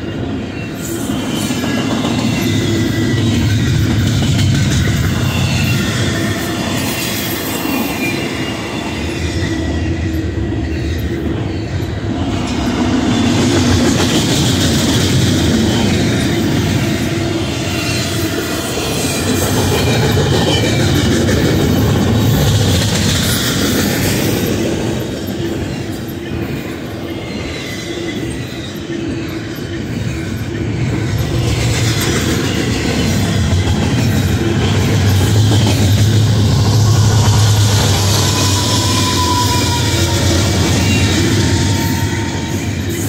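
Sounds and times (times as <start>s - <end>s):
low diesel locomotive drone: 0.0s - 43.0s
train wheels clacking on rails: 0.0s - 43.0s
thin wheel squeal: 36.7s - 43.0s.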